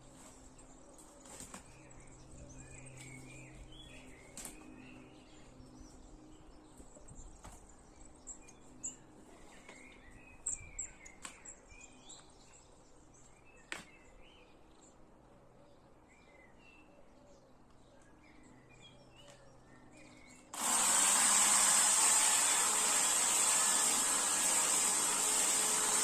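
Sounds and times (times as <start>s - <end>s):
small birds chirping: 0.1s - 20.6s.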